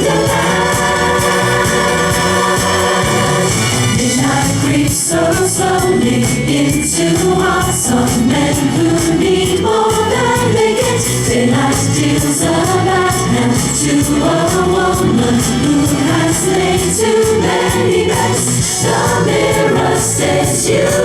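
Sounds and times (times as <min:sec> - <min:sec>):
bass and drum beat: 0:00.0 - 0:21.0
group singing in harmony: 0:00.0 - 0:21.0.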